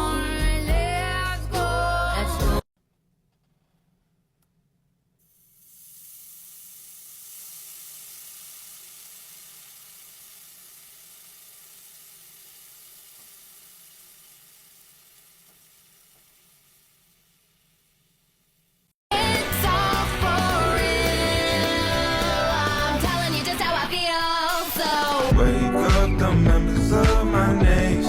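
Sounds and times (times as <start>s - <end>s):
steady sizzling hiss: 5.2s - 23.7s.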